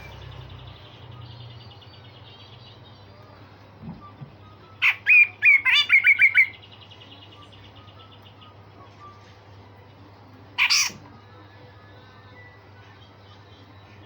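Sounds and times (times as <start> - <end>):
bird harsh rasping call: 10.6 - 11.0.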